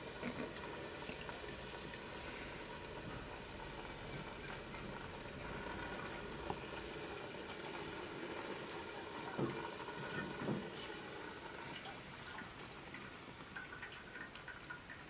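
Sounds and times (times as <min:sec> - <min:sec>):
liquid bubbling in a pot: 0:00.0 - 0:15.0.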